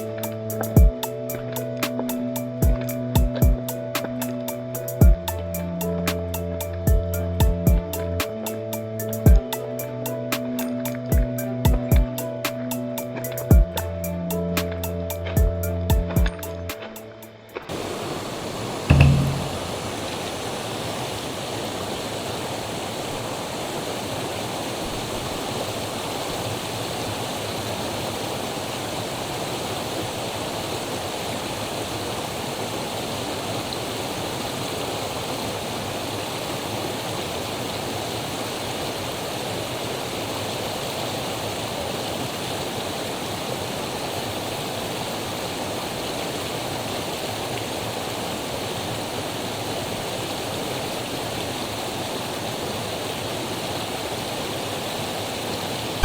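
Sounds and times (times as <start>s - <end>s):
stream water flowing: 16.5s - 56.0s.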